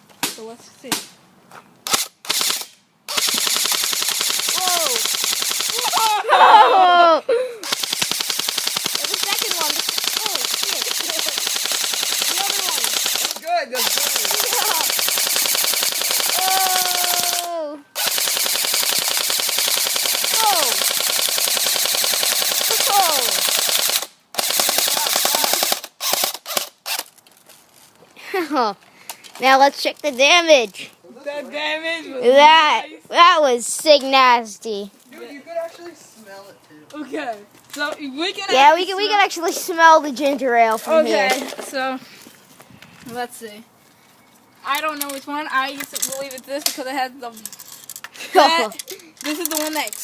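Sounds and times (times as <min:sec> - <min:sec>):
rifle firing automatic bursts: 0:01.9 - 0:06.0, 0:07.6 - 0:27.0.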